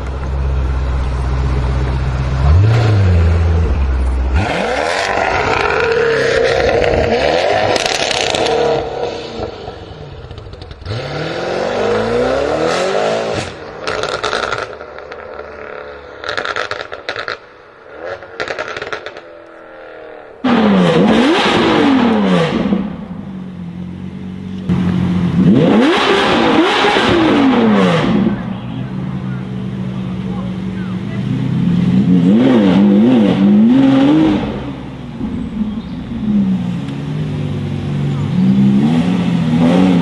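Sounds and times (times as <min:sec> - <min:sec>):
supercar engine revving: 0:00.0 - 0:40.0
exhaust crackles and pops: 0:09.4 - 0:11.0, 0:13.4 - 0:19.7.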